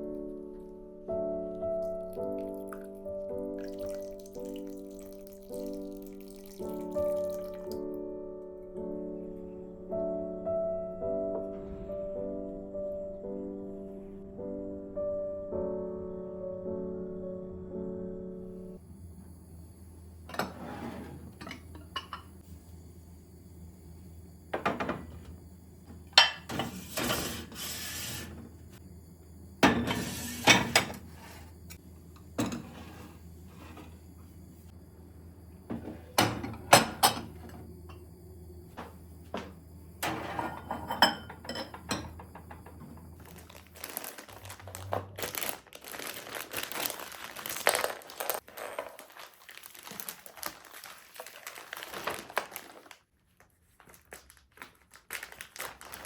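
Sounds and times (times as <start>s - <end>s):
crockery and glass clinking: 21.4s - 22.3s, 40.0s - 43.0s
steady low hum: 28.2s - 43.6s.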